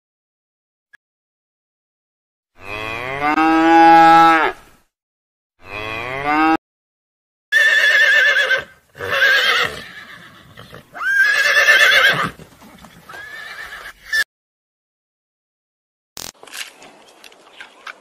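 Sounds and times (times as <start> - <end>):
cattle mooing: 2.6 - 4.6, 5.6 - 6.6
horses whinnying: 7.5 - 14.2.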